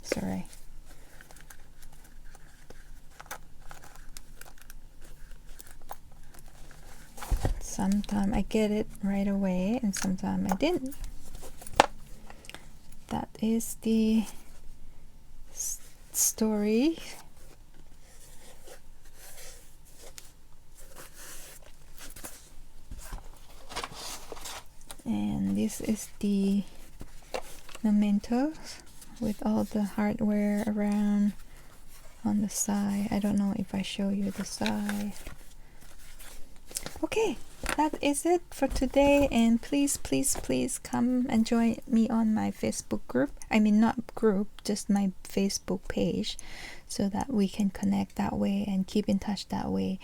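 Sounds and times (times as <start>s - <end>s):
paper rustling: 16.9s - 40.7s.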